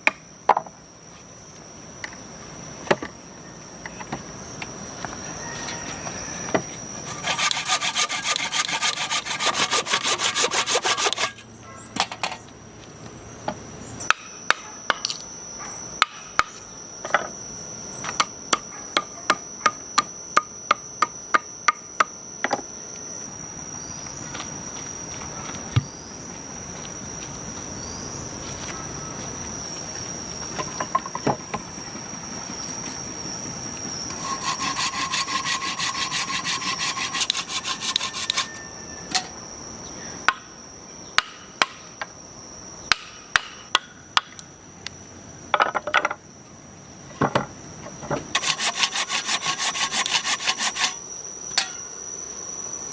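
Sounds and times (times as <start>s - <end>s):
hand saw cutting wood: 7.0s - 11.4s, 34.1s - 38.6s, 48.4s - 51.0s.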